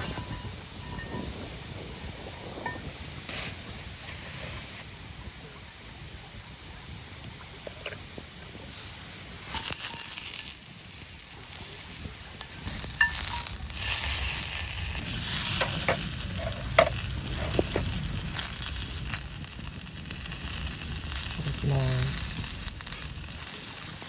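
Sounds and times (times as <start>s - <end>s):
food sizzling in a pan: 0.0s - 5.0s, 8.2s - 24.0s
crackles of frying: 0.0s - 24.0s.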